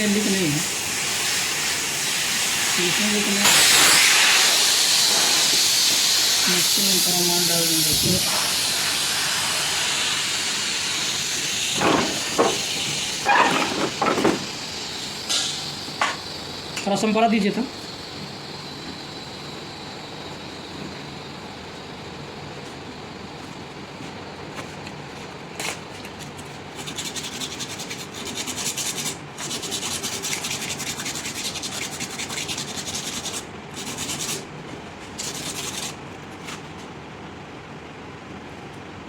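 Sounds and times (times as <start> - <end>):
sandpaper rasping on copper pipe: 26.7 - 34.5, 35.1 - 36.0.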